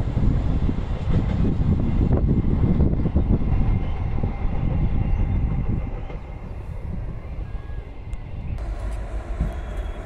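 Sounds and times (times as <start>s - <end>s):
train wheels rumbling: 0.0s - 10.0s.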